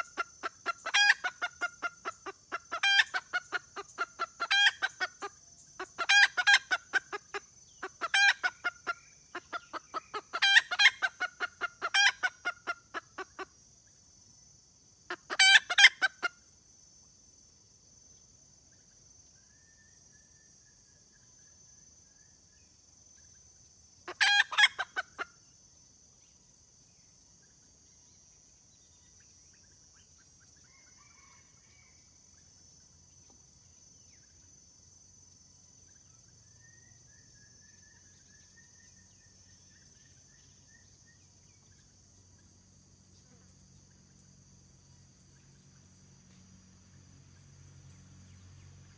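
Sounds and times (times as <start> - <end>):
hen cackling calls: 0.0 - 13.5, 15.1 - 16.3, 24.1 - 25.3.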